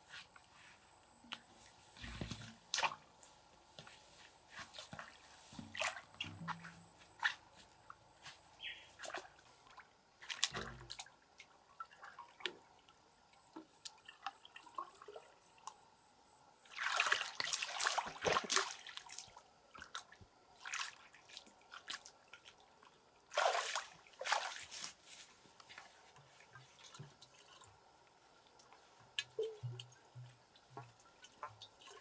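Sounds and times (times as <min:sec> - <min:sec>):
small water splashes: 0:08.7 - 0:12.7, 0:16.7 - 0:25.0
water dripping and trickling: 0:26.2 - 0:32.0.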